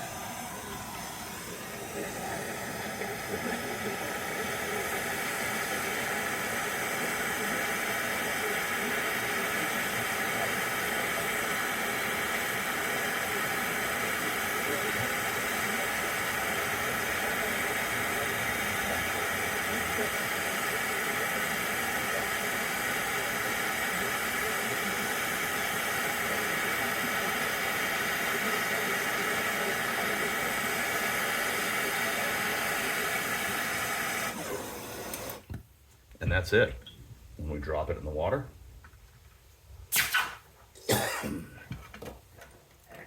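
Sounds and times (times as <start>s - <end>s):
gas torch hissing: 0.0s - 35.6s, 39.9s - 41.5s.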